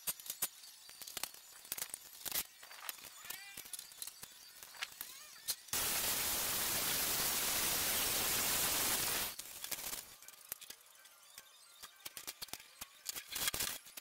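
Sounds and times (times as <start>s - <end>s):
loud steady hiss: 5.8s - 9.4s.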